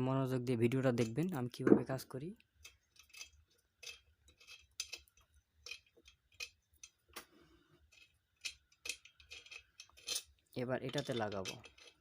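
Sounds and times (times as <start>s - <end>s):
metallic clicks and clinks: 2.5s - 7.2s, 7.8s - 12.0s.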